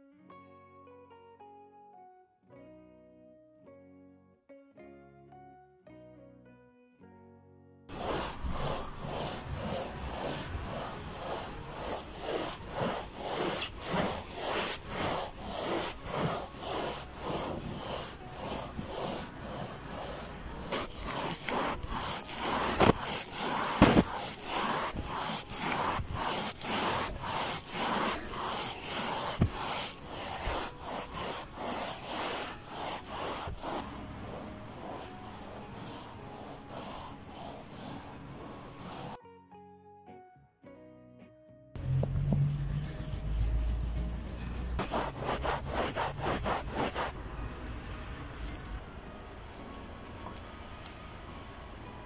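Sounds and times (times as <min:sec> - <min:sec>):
rhythmic scraping strokes: 0:07.9 - 0:39.2, 0:41.8 - 0:47.3.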